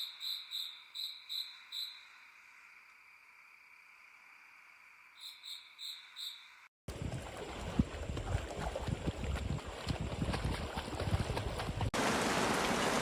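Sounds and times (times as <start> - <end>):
insects trilling: 0.0 - 6.6
frogs croaking: 0.0 - 6.7.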